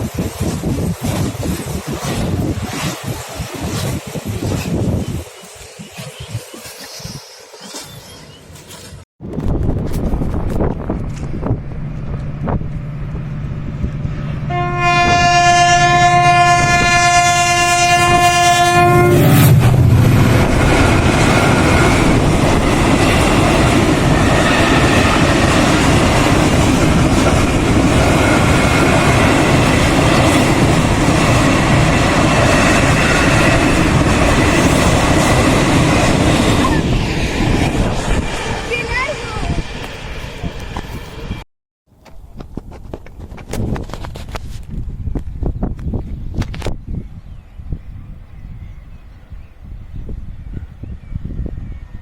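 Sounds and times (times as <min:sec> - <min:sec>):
diesel train engine humming: 0:09.6 - 0:41.4
train horn blast: 0:14.1 - 0:20.3.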